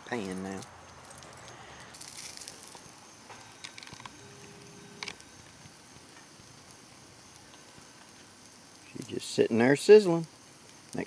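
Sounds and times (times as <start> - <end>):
small clicks and crackles: 0.1 - 11.0
butter sizzling in a skillet: 0.9 - 11.0
short steady tone: 4.1 - 5.1.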